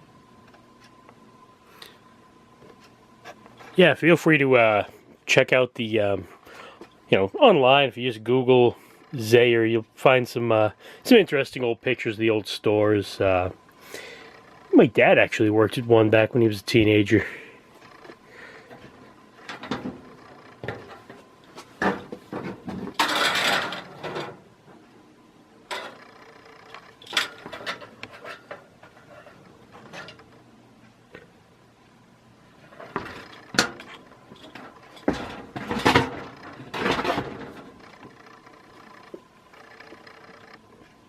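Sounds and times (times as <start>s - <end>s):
knocks and clicks handling fan: 17.9s - 24.8s, 25.7s - 30.4s, 32.7s - 38.3s
scraping and rustling: 25.7s - 30.4s.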